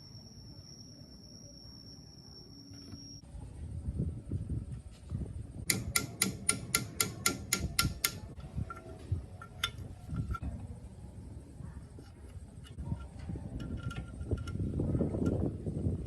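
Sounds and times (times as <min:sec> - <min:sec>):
low rumble of workshop handling: 0:02.7 - 0:16.0
sharp clicks: 0:05.7 - 0:10.4.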